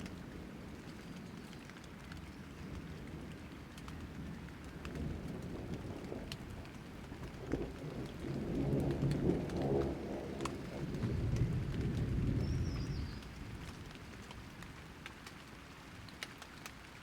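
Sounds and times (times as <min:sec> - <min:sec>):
rain falling: 0:00.0 - 0:17.0
raindrops ticking: 0:00.0 - 0:17.0
thunder rumbling: 0:03.1 - 0:14.2.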